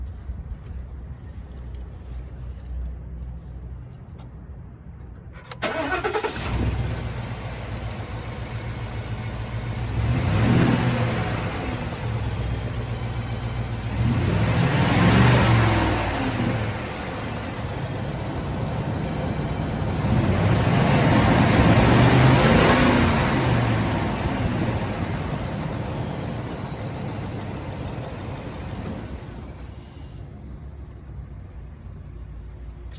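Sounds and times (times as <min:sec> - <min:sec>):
pickup engine starting and revving: 0:05.4 - 0:30.2.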